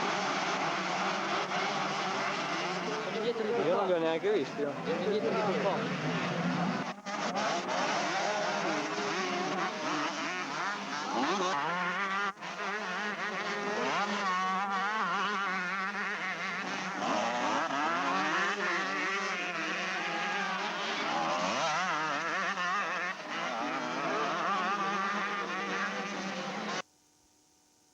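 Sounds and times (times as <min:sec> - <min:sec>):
motorcycle engines revving: 0:00.0 - 0:26.8.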